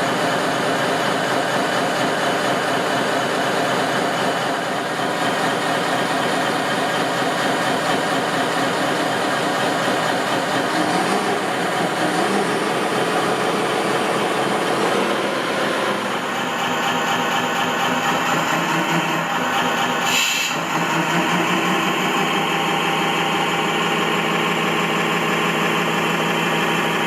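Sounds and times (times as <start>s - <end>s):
machine running: 2.2s - 27.0s.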